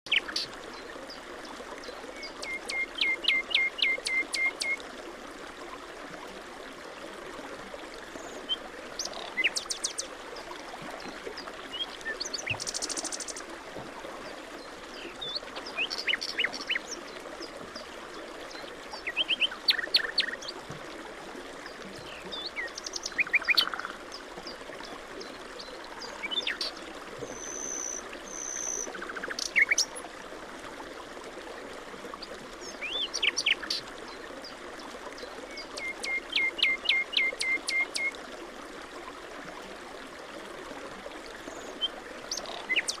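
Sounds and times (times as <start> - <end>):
flowing water rushing: 0.1 - 43.0.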